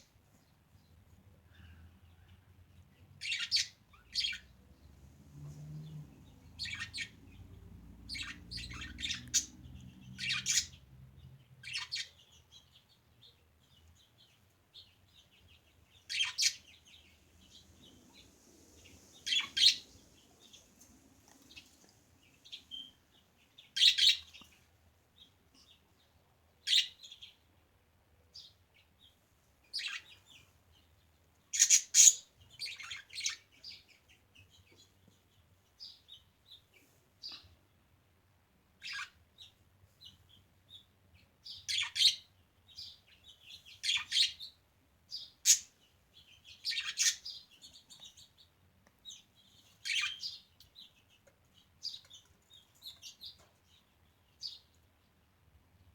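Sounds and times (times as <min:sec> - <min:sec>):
budgerigars chirping: 0:03.2 - 0:04.5, 0:06.4 - 0:07.4, 0:08.1 - 0:10.8, 0:11.6 - 0:12.6, 0:16.0 - 0:18.3, 0:18.9 - 0:20.6, 0:23.6 - 0:24.4, 0:26.7 - 0:27.3, 0:29.8 - 0:30.2, 0:31.6 - 0:33.8, 0:38.8 - 0:40.8, 0:41.4 - 0:48.2, 0:49.8 - 0:50.9.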